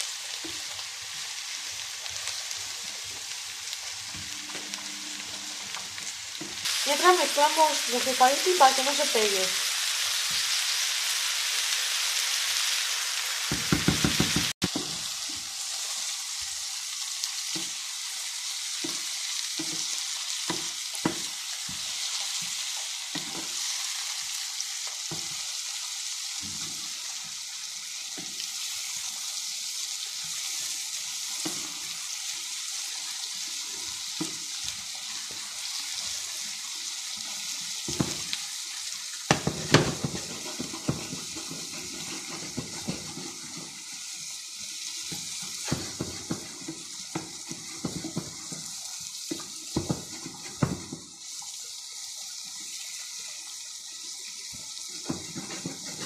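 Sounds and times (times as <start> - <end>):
vegetables sizzling in a frying pan: 0.0 - 56.0
spoon stirring spaghetti in a pot: 39.4 - 44.0, 45.0 - 51.0, 55.0 - 56.0
wooden spoon scraping a pan: 39.4 - 44.1, 45.1 - 51.0, 55.0 - 56.0.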